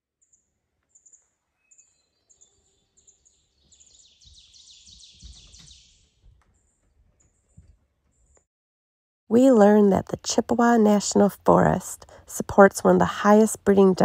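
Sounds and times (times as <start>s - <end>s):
birds chirping: 0.2s - 8.4s.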